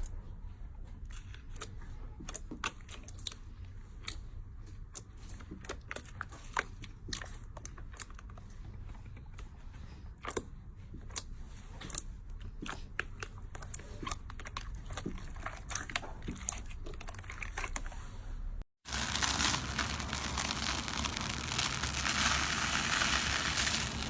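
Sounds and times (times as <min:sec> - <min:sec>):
slime crackling and clicking: 0:18.9 - 0:24.0.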